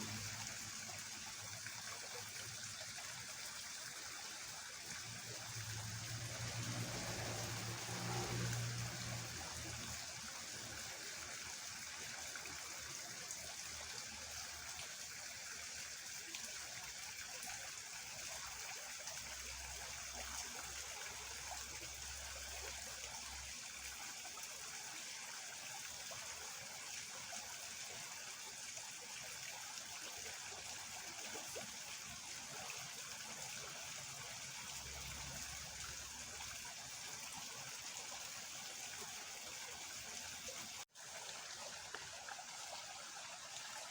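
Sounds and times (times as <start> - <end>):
fast-flowing water rushing: 0.0 - 15.0, 30.4 - 43.9.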